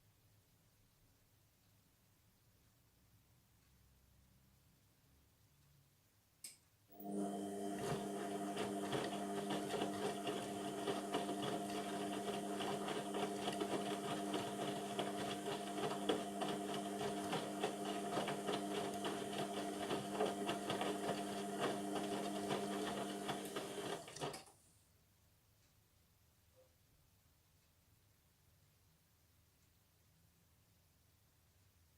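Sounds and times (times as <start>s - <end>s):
washing machine humming: 6.9s - 24.5s.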